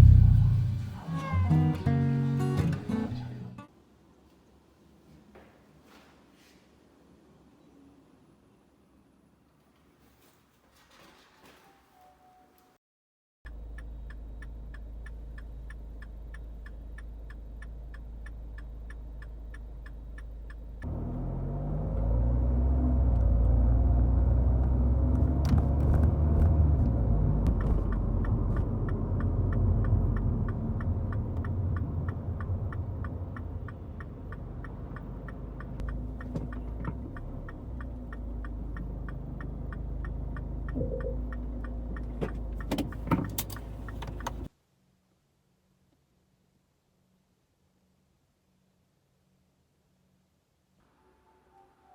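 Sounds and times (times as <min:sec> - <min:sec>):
car engine running: 0:00.0 - 0:03.4, 0:13.5 - 0:44.5
light engine ticks: 0:13.5 - 0:21.0, 0:27.4 - 0:44.5.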